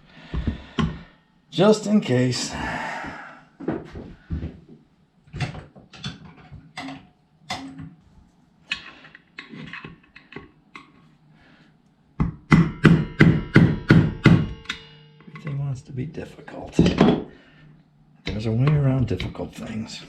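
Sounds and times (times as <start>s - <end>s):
tools and metal parts clicking: 8.7s - 11.1s.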